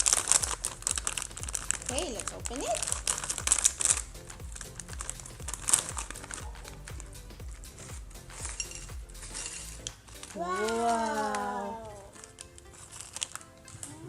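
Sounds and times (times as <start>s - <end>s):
background music with beat: 0.0s - 14.0s
plastic chip bag crinkling: 11.9s - 14.0s.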